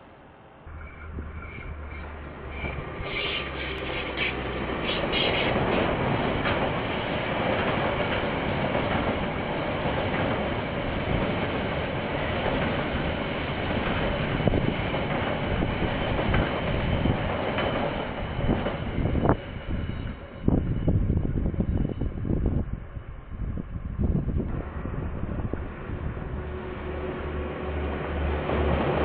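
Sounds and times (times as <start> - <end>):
train wheels rolling on rails: 0.7 - 23.0.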